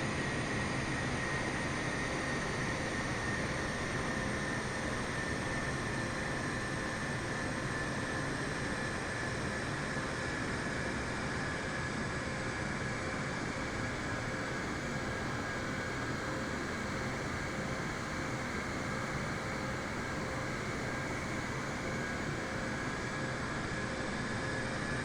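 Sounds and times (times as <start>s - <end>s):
jet airliner engines running: 0.0s - 25.0s.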